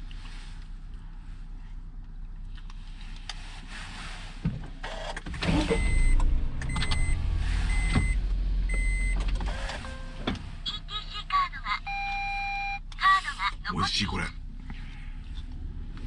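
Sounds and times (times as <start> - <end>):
car engine rumble: 0.0 - 16.0
high beeps: 5.8 - 10.9, 11.8 - 12.8.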